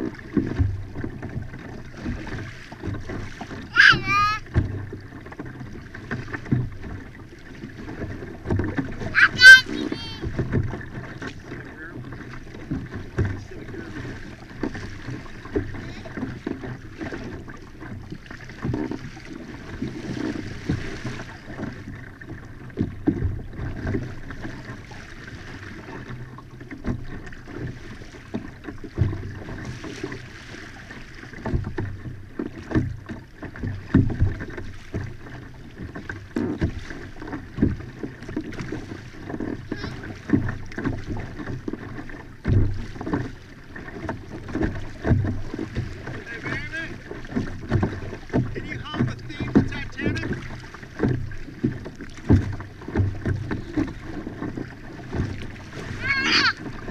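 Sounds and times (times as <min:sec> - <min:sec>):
water splashing against kayak hull: 0:00.0 - 0:56.9
knocks on kayak hull: 0:04.4 - 0:07.1, 0:26.0 - 0:30.3, 0:31.2 - 0:56.9.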